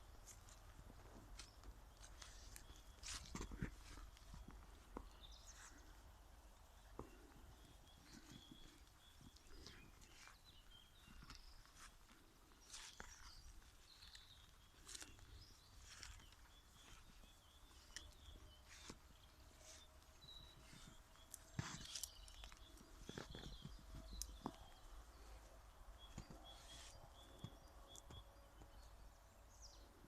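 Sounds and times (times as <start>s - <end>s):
footsteps on a path: 0.1s - 5.9s, 7.0s - 25.2s
bird chirps: 12.6s - 30.0s.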